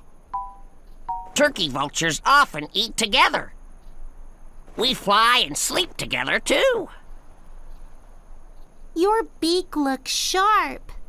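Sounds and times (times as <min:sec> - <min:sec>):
soft hiss: 0:03.6 - 0:11.0.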